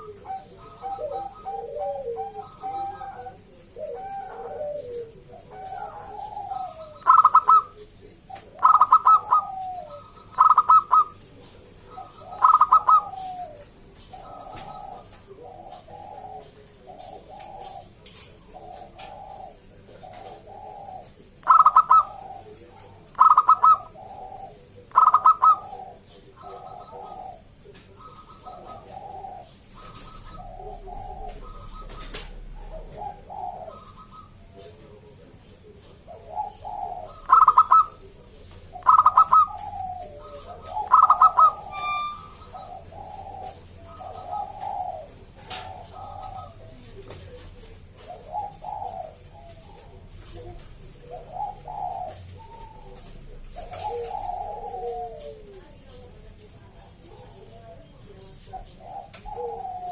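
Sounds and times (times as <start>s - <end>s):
doves cooing softly: 0.0s - 59.9s
loud high ringing calls: 40.9s - 42.7s.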